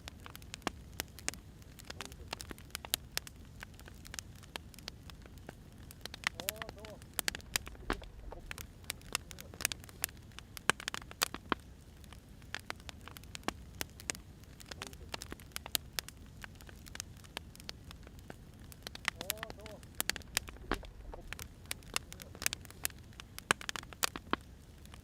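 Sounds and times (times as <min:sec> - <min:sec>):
firewood crackling: 0:00.0 - 0:25.0
soft low rumble: 0:07.0 - 0:09.8, 0:19.1 - 0:22.8.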